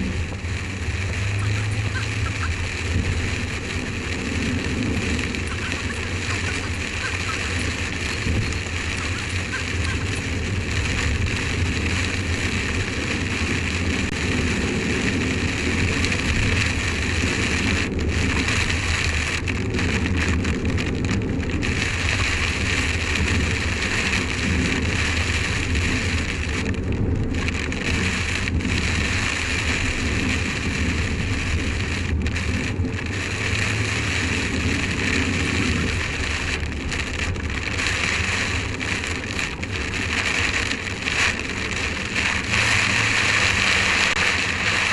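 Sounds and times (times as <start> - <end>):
car driving drone: 0.0 - 44.9
rain hitting car windscreen: 0.0 - 44.9.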